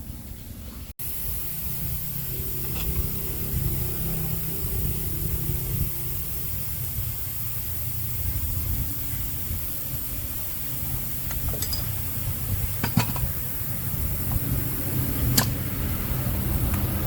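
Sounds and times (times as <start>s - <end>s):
low mechanical hum with hiss: 0.0s - 17.0s
sharp metallic clinks: 8.4s - 16.3s.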